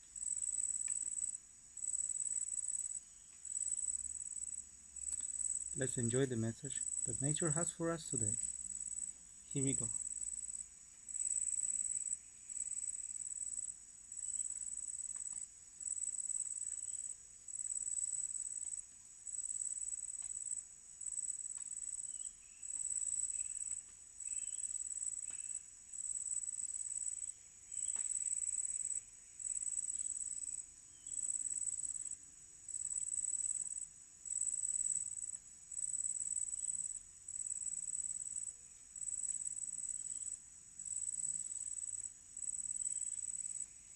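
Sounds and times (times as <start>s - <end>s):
insect chorus trilling: 0.2s - 32.1s, 32.7s - 43.9s
faint bird chirps: 22.0s - 25.7s, 27.2s - 30.2s.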